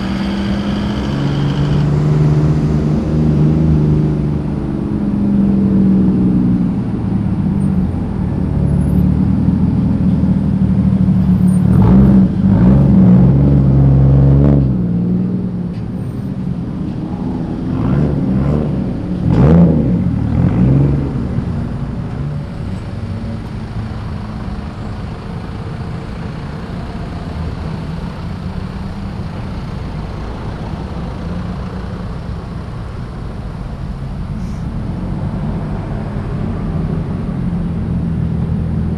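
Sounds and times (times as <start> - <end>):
cars revving and driving past: 0.0 - 38.9
low steady engine rumble: 0.0 - 38.9.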